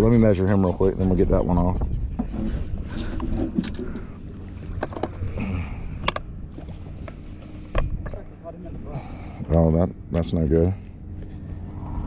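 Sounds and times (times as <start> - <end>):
wind: 0.0 - 12.0
water against boat hull: 1.5 - 5.4.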